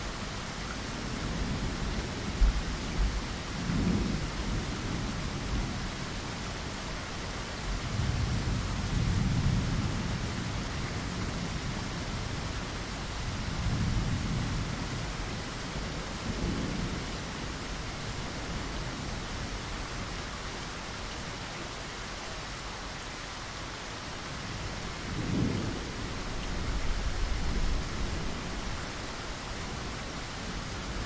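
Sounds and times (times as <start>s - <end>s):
steady rain hissing: 0.0s - 31.0s
thunder rumbling: 24.4s - 31.0s.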